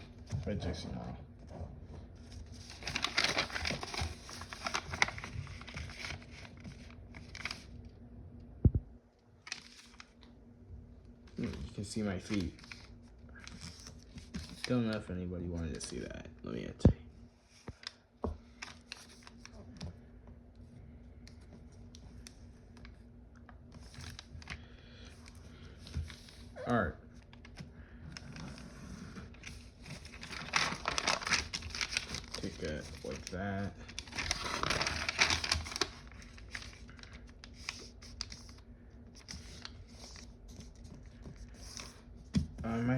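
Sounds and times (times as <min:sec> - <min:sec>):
low steady hum: 0:00.0 - 0:42.9
foil paper crinkling: 0:02.2 - 0:07.8, 0:09.4 - 0:10.3, 0:11.3 - 0:15.1, 0:17.8 - 0:19.6, 0:27.2 - 0:42.2.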